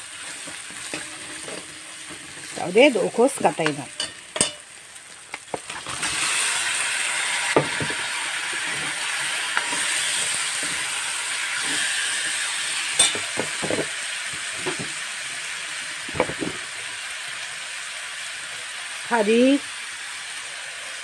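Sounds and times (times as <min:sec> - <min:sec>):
chicken sizzling in oil: 0:00.0 - 0:21.0
metal spoon knocking wok: 0:03.6 - 0:04.7, 0:13.0 - 0:14.9.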